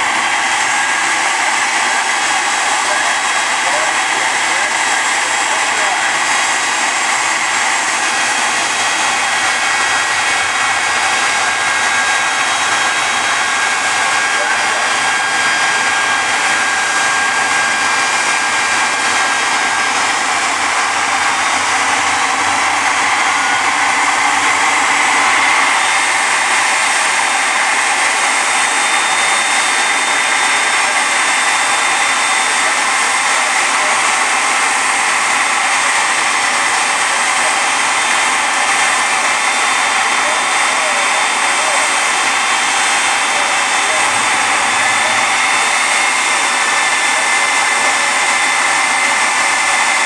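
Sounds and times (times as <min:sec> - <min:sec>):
jet engines roaring: 0:00.0 - 0:50.0.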